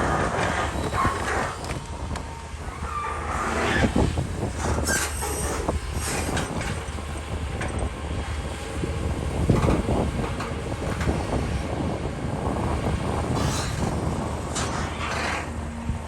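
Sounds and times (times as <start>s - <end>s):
excavator engine hum: 0.0s - 16.0s
clanking and rattling: 9.4s - 11.4s, 13.2s - 15.7s.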